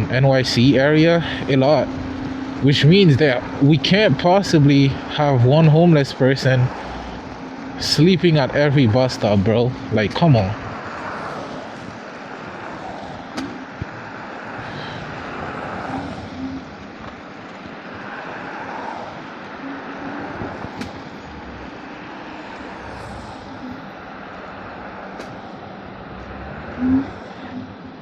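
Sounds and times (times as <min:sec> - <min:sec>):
street traffic noise: 0:00.0 - 0:28.0.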